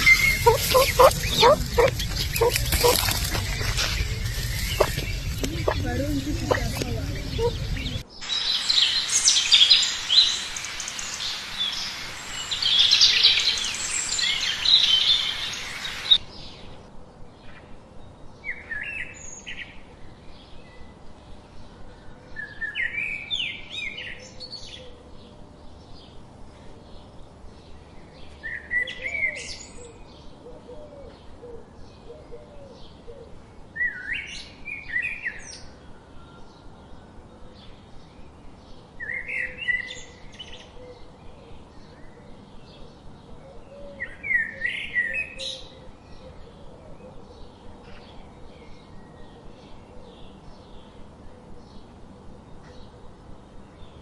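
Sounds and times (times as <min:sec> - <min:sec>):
birds chirping: 0:00.0 - 0:16.7.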